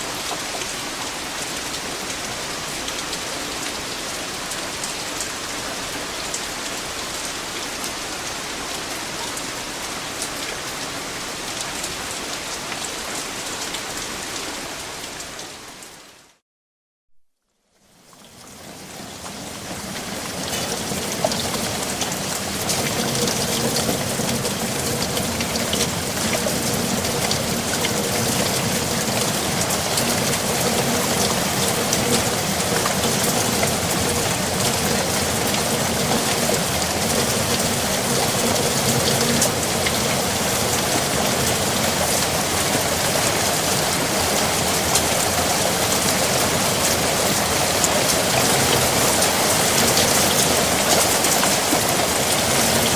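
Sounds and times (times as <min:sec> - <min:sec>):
steady rain pattering: 0:00.0 - 0:16.4, 0:17.3 - 0:52.9.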